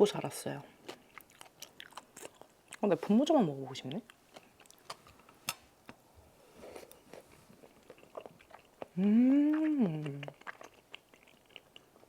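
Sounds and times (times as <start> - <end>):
wet chewing and mouth clicks: 0.2 - 3.0, 3.8 - 6.0, 6.7 - 12.0
woman humming mmm: 9.0 - 10.4.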